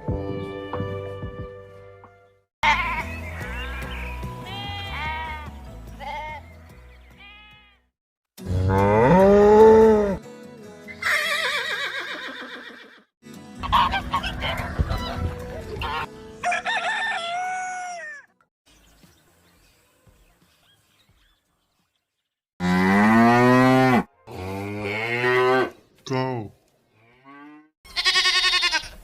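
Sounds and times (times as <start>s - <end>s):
rooster crowing and clucking: 16.4s - 18.3s.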